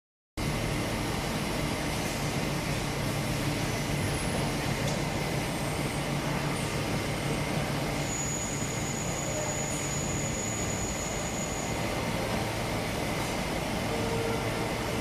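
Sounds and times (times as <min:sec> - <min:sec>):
lathe machine hum: 0:00.4 - 0:15.0
faint high whine: 0:03.2 - 0:15.0.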